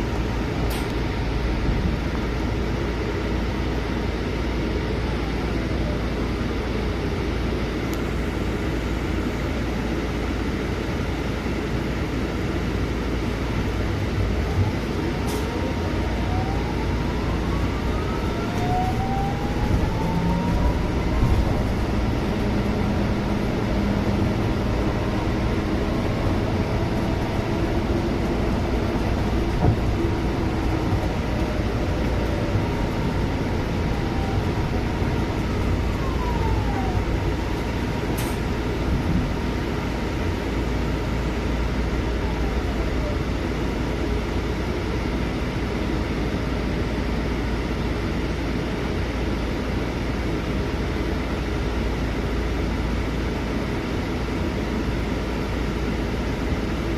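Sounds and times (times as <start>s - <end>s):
bus engine and road rumble: 0.0s - 56.9s
rising engine whines: 13.3s - 44.2s.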